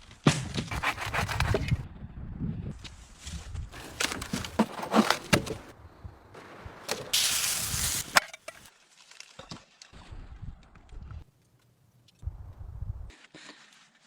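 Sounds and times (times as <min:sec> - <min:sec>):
axe chopping wood: 0:00.6 - 0:01.8
loud hissing noise: 0:07.2 - 0:08.2.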